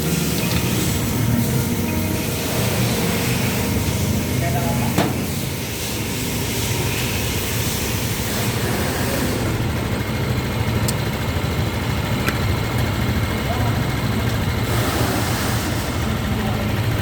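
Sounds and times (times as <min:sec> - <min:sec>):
low mechanical running sound: 0:00.0 - 0:17.0.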